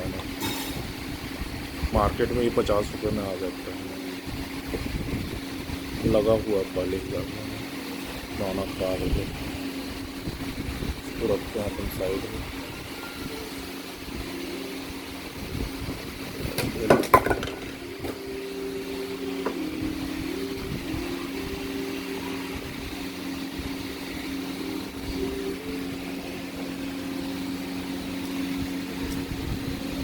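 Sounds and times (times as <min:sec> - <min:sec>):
low mechanical hum: 0:00.0 - 0:30.0
wavering tone: 0:11.4 - 0:16.1, 0:17.6 - 0:30.0.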